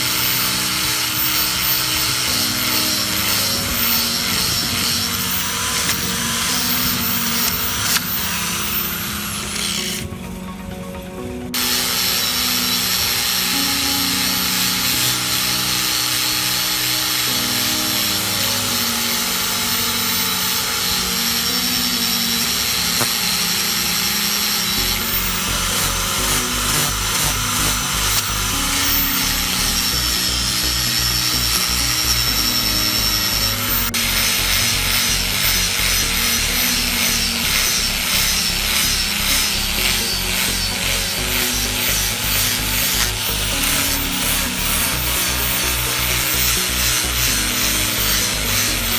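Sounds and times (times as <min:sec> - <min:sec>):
angle grinder sanding steel: 0:00.0 - 0:10.8, 0:11.4 - 0:48.9
background music with low beat: 0:17.9 - 0:48.9.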